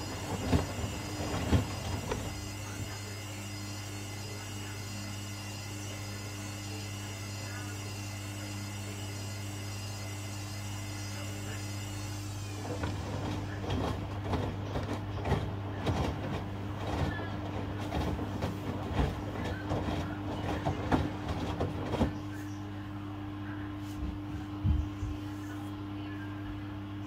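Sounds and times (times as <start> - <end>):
washing machine motor hum: 0.0 - 27.0
drum knocking and clattering: 12.8 - 22.2.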